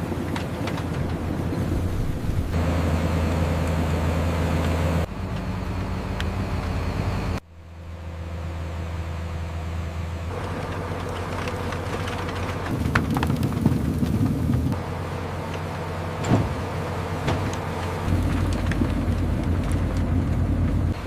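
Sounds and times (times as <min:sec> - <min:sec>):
factory machinery hum: 0:00.0 - 0:12.7.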